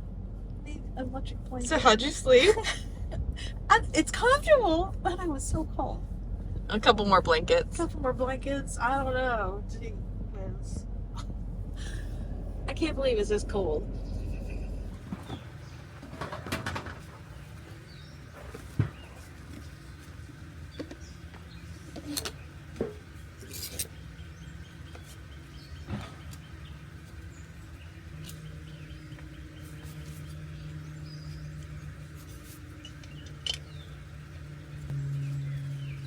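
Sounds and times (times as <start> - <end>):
birds chirping: 0.0 - 36.0
low steady hum: 0.0 - 36.0
sharp clicks and knocks: 15.0 - 17.3.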